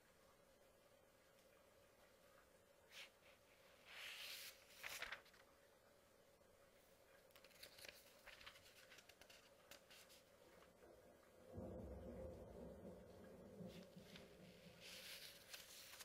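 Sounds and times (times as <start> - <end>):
paper pages turning: 2.9 - 5.6, 7.2 - 10.7, 14.1 - 16.0
paper crinkling ticks: 4.4 - 5.4, 7.3 - 10.7.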